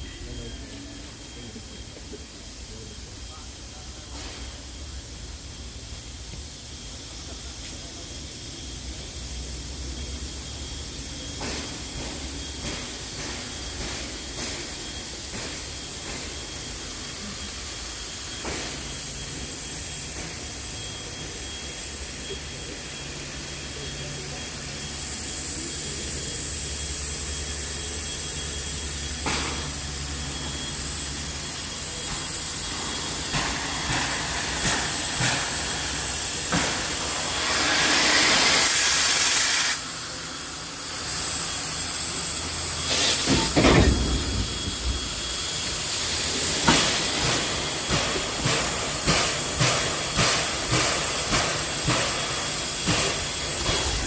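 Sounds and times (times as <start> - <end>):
steam locomotive hissing steam: 0.0 - 54.0
loud burst of escaping steam: 31.5 - 54.0
regular beats of moving train: 44.5 - 54.0.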